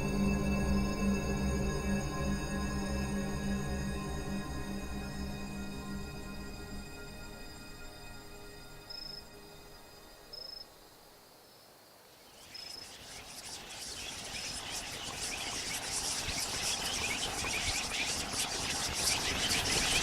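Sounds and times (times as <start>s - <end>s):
crickets chirping: 6.1s - 20.0s.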